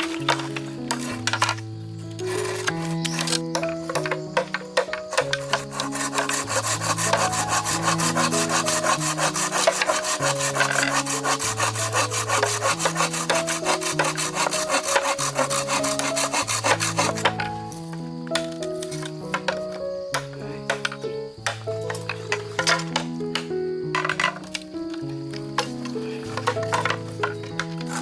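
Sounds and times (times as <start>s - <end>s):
rapid rasping strokes: 0.0s - 17.8s.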